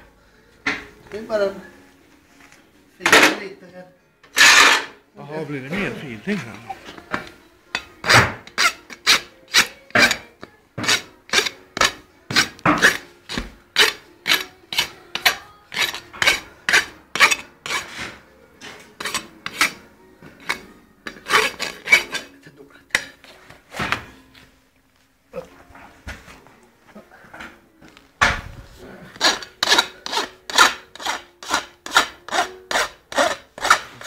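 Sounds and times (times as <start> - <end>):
rasp filing a hoof: 7.8 - 22.4, 28.9 - 34.0.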